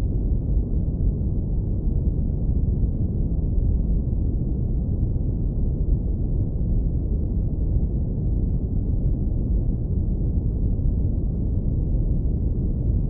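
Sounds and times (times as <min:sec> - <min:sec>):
deep brown noise rumble: 0:00.0 - 0:13.0.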